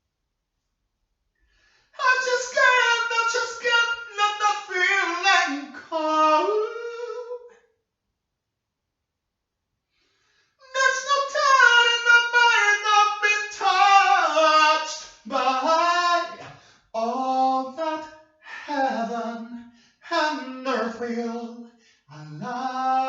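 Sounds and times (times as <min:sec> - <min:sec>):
person singing unaccompanied: 0:02.0 - 0:07.4, 0:10.6 - 0:23.0.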